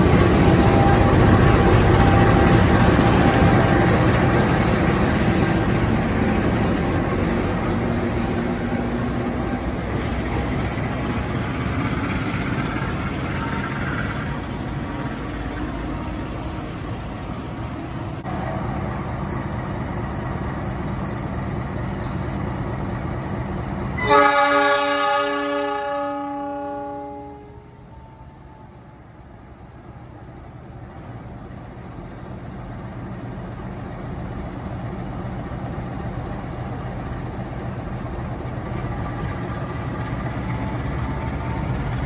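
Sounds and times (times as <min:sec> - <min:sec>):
diesel locomotive horn: 0:00.0 - 0:04.8, 0:24.0 - 0:28.8
train wheels rumbling on rails: 0:00.0 - 0:42.0.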